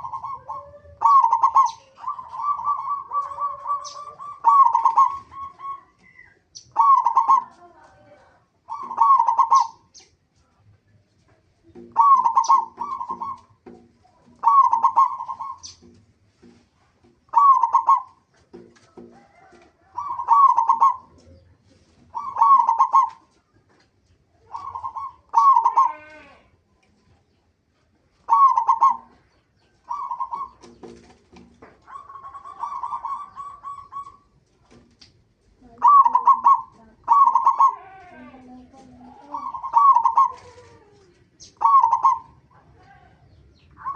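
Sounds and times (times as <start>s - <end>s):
zebra dove cooing: 0.0s - 9.9s, 11.8s - 15.9s, 17.3s - 18.3s, 19.1s - 23.4s, 24.4s - 26.5s, 28.2s - 30.7s, 31.8s - 34.4s, 35.6s - 43.9s.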